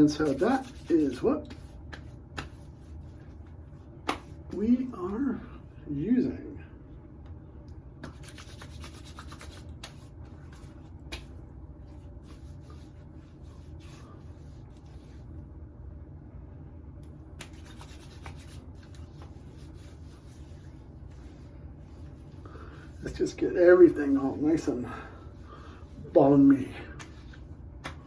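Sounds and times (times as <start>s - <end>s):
hands rubbing skin: 0.0s - 5.2s, 8.0s - 15.3s, 17.0s - 28.0s.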